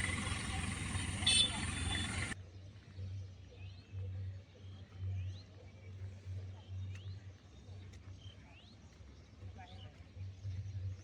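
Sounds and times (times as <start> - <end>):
low uneven rumble: 0.0 - 2.4.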